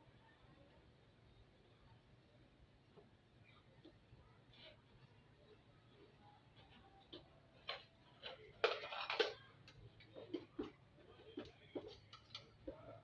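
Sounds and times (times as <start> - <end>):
tools and parts clicking: 7.6 - 10.7.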